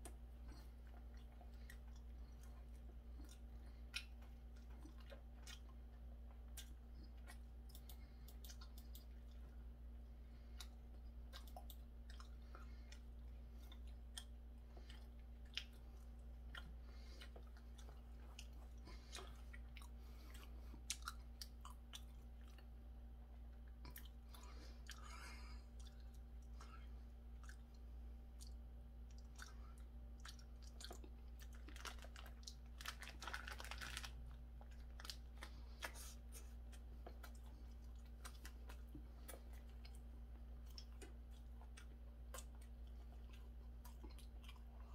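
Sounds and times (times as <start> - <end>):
chewing food: 0.0 - 44.9
small clicks and crunches: 30.6 - 36.1.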